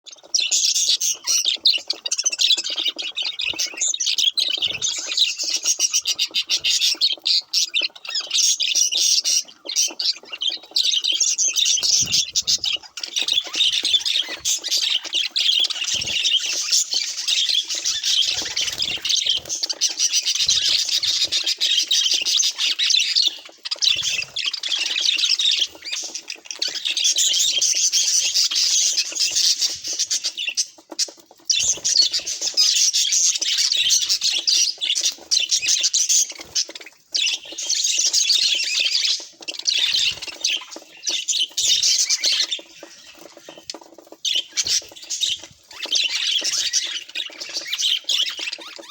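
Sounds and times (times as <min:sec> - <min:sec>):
budgerigars chattering and warbling: 0:00.0 - 0:48.9.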